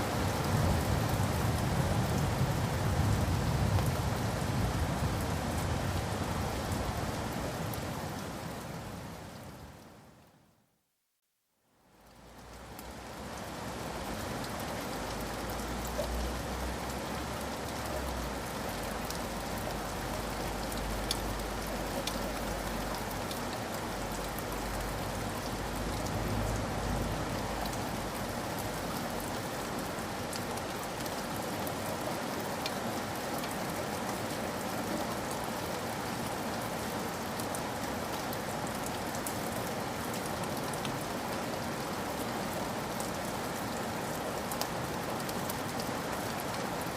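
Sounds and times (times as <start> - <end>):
steady rain: 0.0 - 46.9
raindrop ticks: 17.7 - 28.4.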